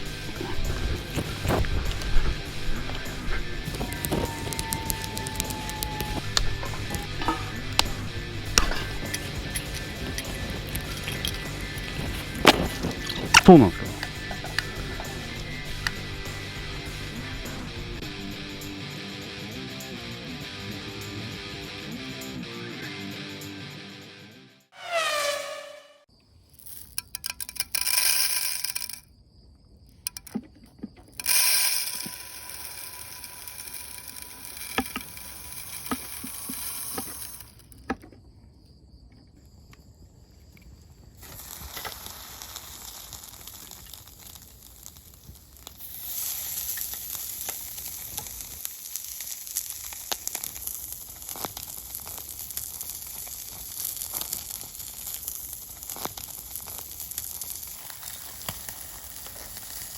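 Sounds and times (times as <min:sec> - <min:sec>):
food sizzling in a pan: 0:00.0 - 0:17.0, 0:31.2 - 0:37.6, 0:41.2 - 0:59.9
cookware and utensils clattering: 0:06.0 - 0:15.3.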